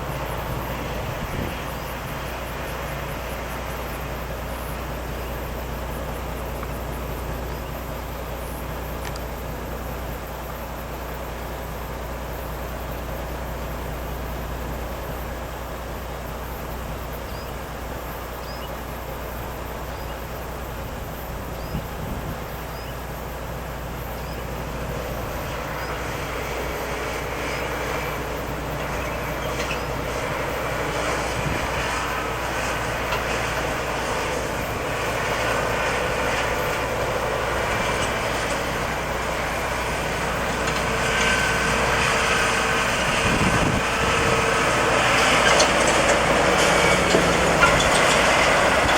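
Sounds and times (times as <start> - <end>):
truck diesel engine running: 0.0 - 48.9.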